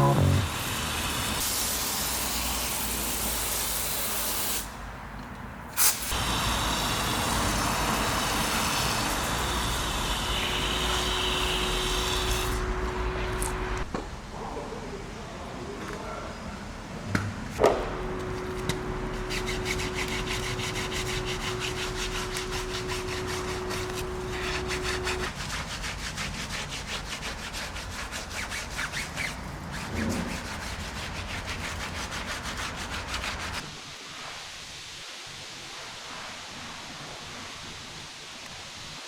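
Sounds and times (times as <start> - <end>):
steady hum: 17.6 - 25.3
brush scrubbing a car: 18.2 - 33.6.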